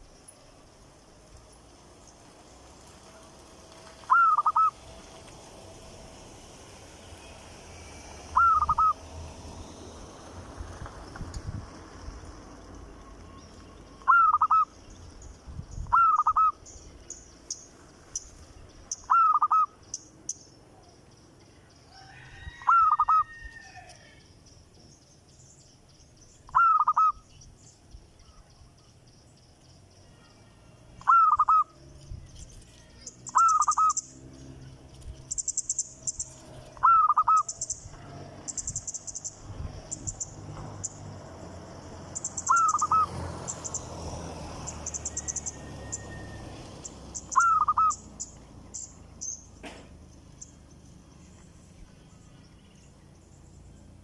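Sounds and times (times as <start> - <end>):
high bird chirping: 4.0 - 4.8, 7.2 - 9.0, 13.3 - 21.7, 24.4 - 30.4, 31.0 - 41.0, 42.0 - 43.9, 44.6 - 51.4
bird giving loud call: 4.1 - 4.8, 8.3 - 9.0, 14.0 - 14.8, 15.9 - 16.6, 19.1 - 19.7, 26.5 - 27.2, 31.0 - 31.8, 36.8 - 37.6, 42.4 - 43.1, 47.3 - 48.0.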